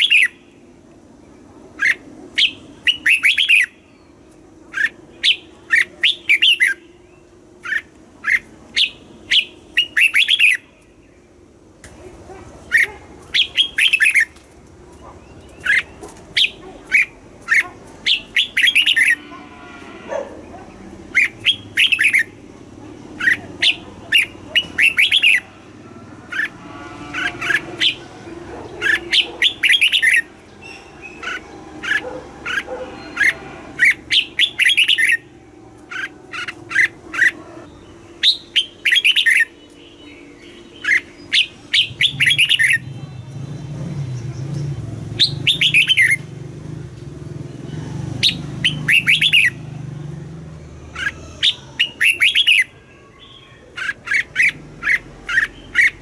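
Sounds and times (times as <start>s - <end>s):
bird singing bright notes: 12.6s - 19.3s, 35.9s - 46.3s, 47.7s - 49.7s.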